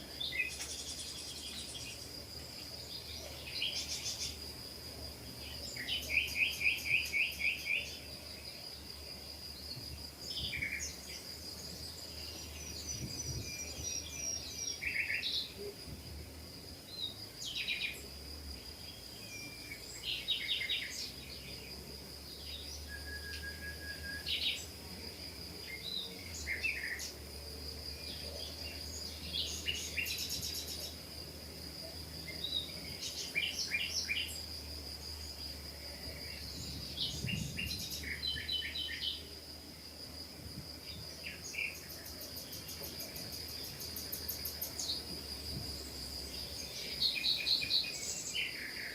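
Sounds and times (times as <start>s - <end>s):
small birds chirping: 0.0s - 15.6s, 28.0s - 31.2s, 31.8s - 39.4s, 40.7s - 48.9s.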